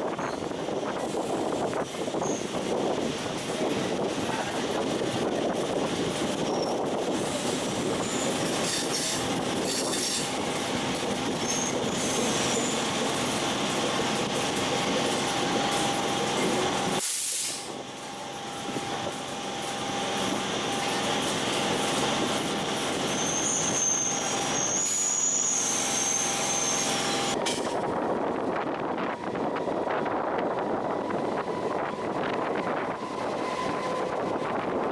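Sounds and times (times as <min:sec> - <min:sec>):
train wheels squealing: 0:00.0 - 0:00.6, 0:02.1 - 0:02.6, 0:06.3 - 0:27.4, 0:32.6 - 0:34.4
electric train rumbling on track: 0:00.0 - 0:34.9.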